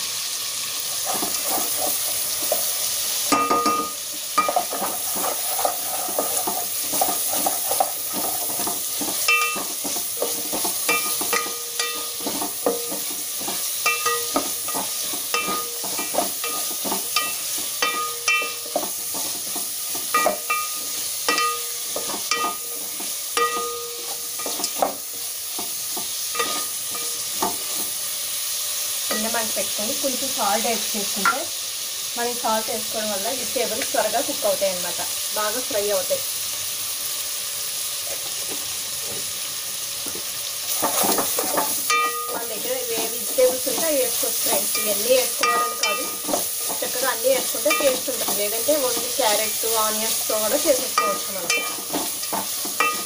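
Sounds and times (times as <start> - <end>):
vegetables sizzling in oil: 0.0 - 53.0
spatula knocking metal pot: 3.3 - 27.9, 40.8 - 53.0.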